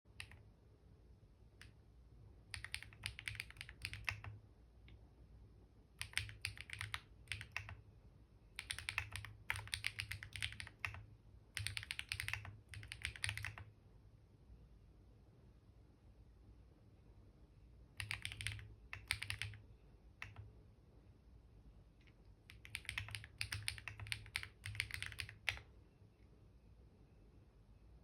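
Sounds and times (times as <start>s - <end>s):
computer keyboard typing: 0.1s - 0.5s, 2.4s - 4.4s, 6.0s - 7.9s, 8.5s - 13.7s, 17.9s - 20.5s, 22.1s - 25.7s.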